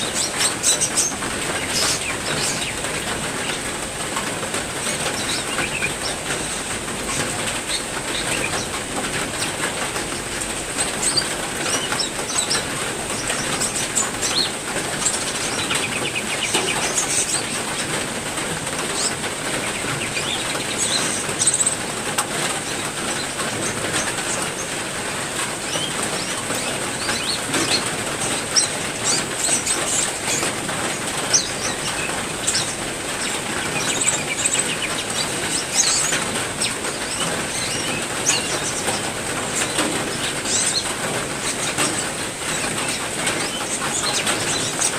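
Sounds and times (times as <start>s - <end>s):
songbirds chirping: 0.0s - 44.9s
steady rain falling: 0.0s - 44.9s.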